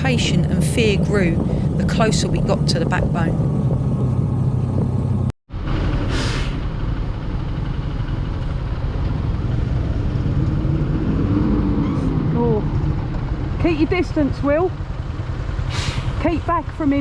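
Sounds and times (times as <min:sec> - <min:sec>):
motorcycle engine running: 0:00.0 - 0:06.0, 0:12.3 - 0:17.0
road and wind noise: 0:00.0 - 0:17.0.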